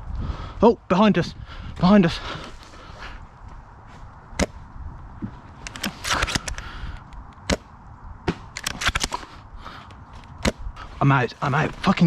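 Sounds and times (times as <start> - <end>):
airsoft gun cracks: 8.4 - 9.2.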